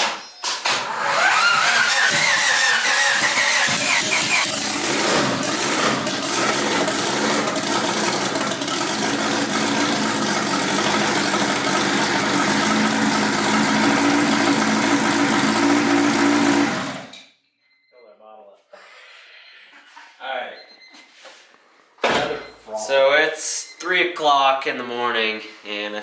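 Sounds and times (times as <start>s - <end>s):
car engine running: 1.0s - 17.1s.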